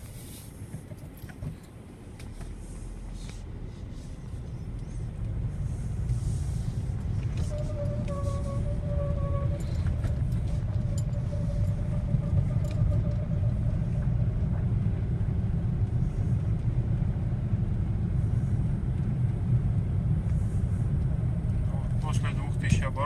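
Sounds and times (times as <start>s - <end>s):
engine and road rumble: 0.0s - 23.0s
high squeal from underneath car: 3.9s - 15.2s.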